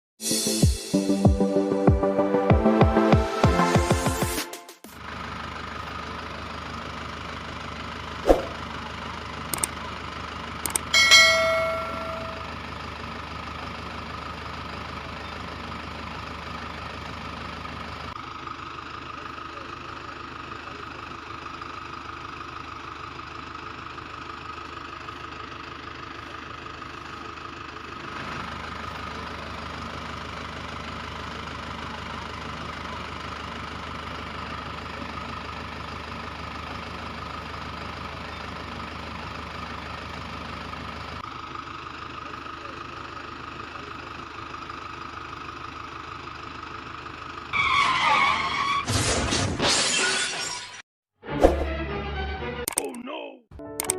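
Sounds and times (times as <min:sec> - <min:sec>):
tractor engine idling: 0:05.0 - 0:47.7
sharp clicks: 0:09.6 - 0:09.8, 0:10.7 - 0:10.9, 0:52.7 - 0:53.0
bell-like ring: 0:11.0 - 0:12.5.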